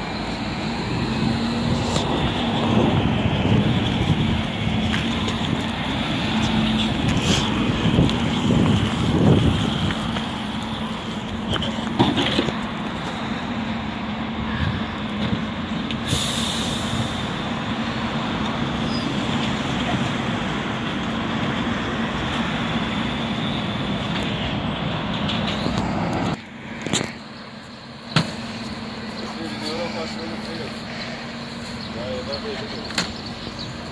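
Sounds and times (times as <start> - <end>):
garbage truck engine drone: 0.0 - 33.9
air hiss: 16.0 - 17.4.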